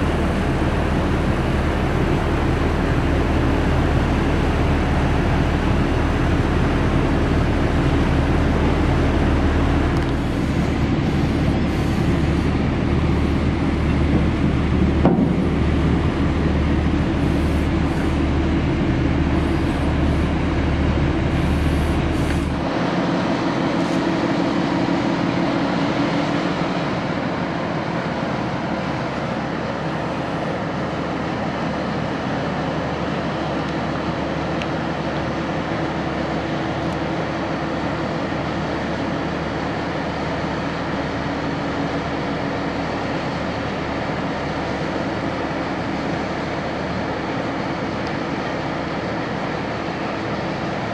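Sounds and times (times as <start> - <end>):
deep rumble: 0.0 - 25.6
ship diesel engine humming: 0.0 - 50.9.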